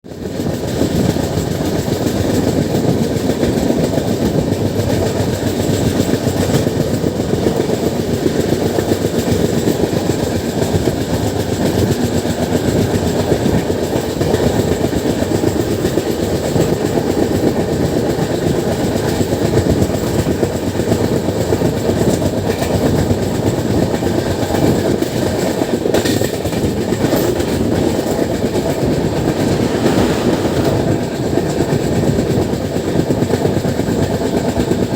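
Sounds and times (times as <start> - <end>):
train wheels clattering on track: 0.1 - 34.9.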